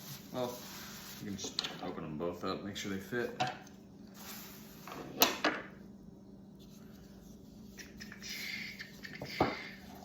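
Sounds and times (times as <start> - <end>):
packaging rustling and scraping: 0.0 - 1.8, 4.1 - 5.1.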